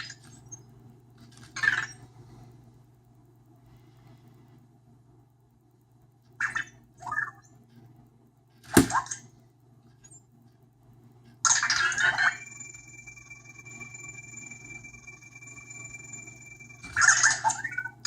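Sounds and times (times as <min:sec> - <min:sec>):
robot chirps: 0:11.5 - 0:18.0
steady high tone: 0:11.5 - 0:18.0.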